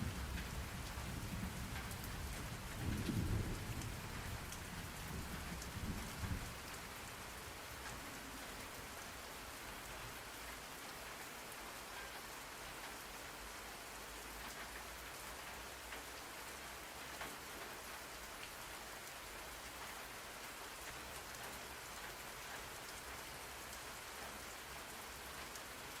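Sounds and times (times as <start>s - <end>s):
low rumble of thunder: 0.0s - 7.3s
steady rain falling: 0.0s - 26.0s.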